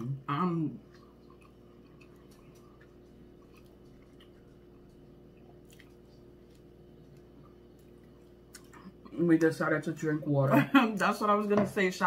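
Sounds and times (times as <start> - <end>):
faint chewing of food: 0.7 - 9.2.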